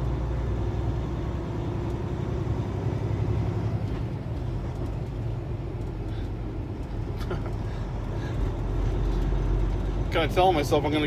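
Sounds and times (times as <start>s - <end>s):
truck diesel engine rumbling: 0.0s - 11.0s.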